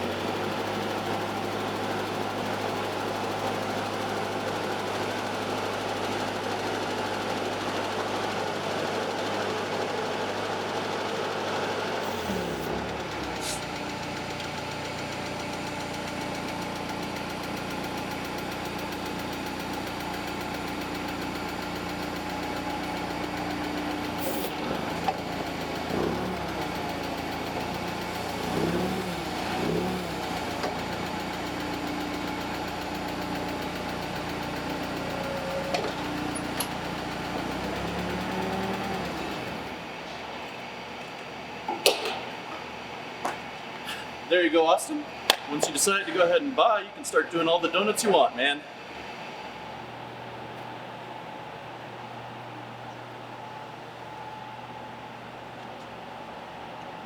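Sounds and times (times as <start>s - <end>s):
forklift engine running: 0.0s - 44.3s, 45.0s - 57.0s.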